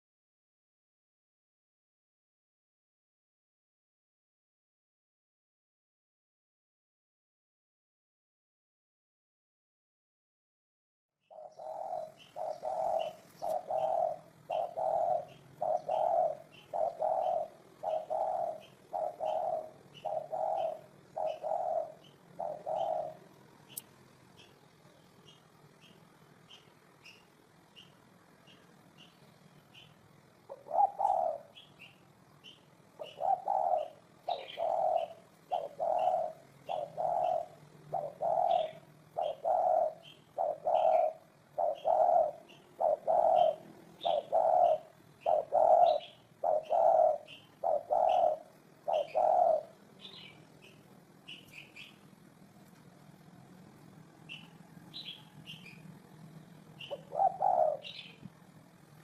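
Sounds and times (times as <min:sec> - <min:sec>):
dove cooing: 0:11.3 - 0:23.8, 0:29.7 - 0:52.5, 0:54.2 - 0:59.0.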